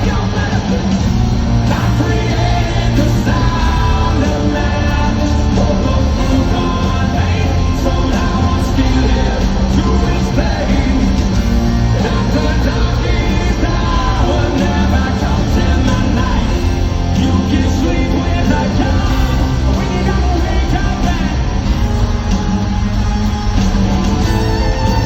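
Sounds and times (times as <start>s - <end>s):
shouted sung vocal: 0.0s - 22.0s
live hard rock band: 0.0s - 25.0s.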